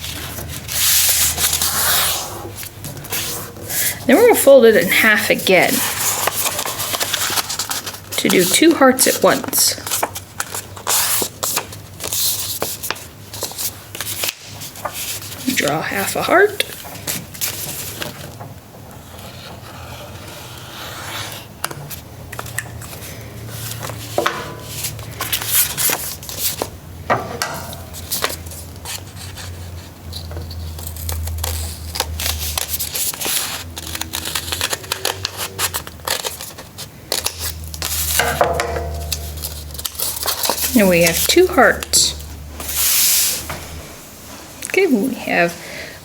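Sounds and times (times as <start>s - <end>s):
paper crinkling: 0.0s - 18.4s, 27.9s - 43.8s
scissors snipping paper: 30.2s - 38.4s, 39.0s - 42.0s.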